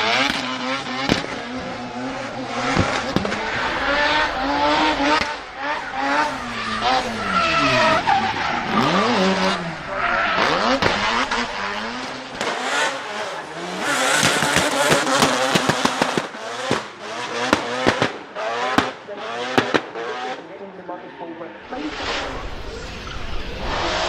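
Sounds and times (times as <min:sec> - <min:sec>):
car engine revving: 0:00.0 - 0:24.0
tyre squeal: 0:02.9 - 0:11.7.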